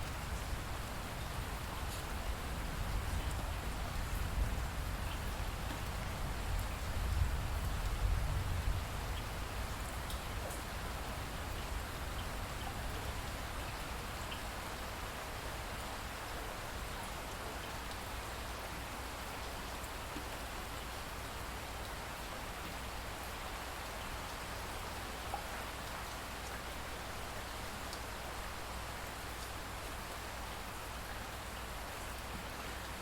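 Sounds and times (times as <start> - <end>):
rain falling: 0.0 - 33.0.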